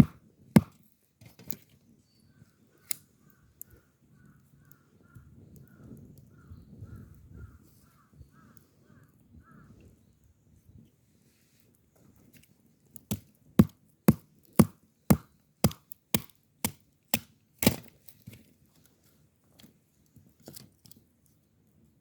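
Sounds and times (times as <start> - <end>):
axe chopping wood: 0.0 - 0.8, 13.1 - 17.9.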